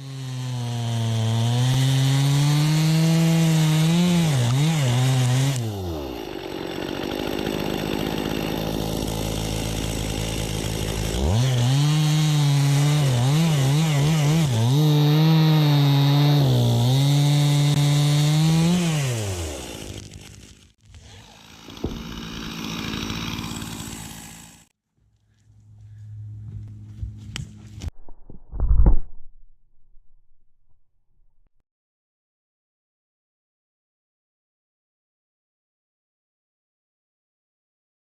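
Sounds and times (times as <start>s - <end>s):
chainsaw engine revving: 0.0s - 20.3s, 21.0s - 24.7s.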